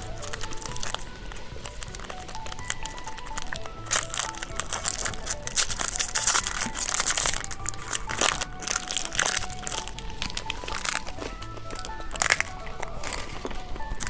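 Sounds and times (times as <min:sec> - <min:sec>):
crisp snack crunching: 0:00.0 - 0:14.0
plastic wrappers crinkling: 0:00.0 - 0:14.0
soft background music: 0:00.0 - 0:14.0.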